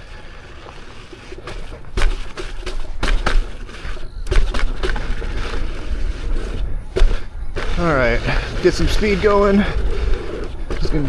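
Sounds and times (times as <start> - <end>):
constant low rumble: 0.0 - 11.0
tyre knocks and clunks over bumps: 1.4 - 5.7, 6.3 - 9.6.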